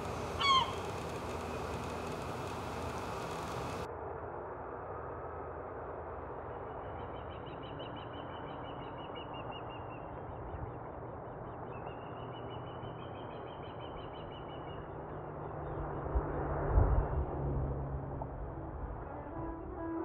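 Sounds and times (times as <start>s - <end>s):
songbird trilling: 0.0s - 1.1s.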